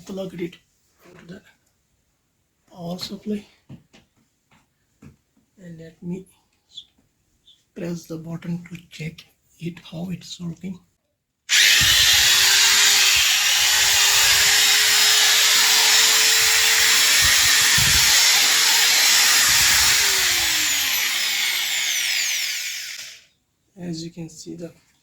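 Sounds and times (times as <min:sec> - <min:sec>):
angle grinder whining: 0:11.5 - 0:23.3.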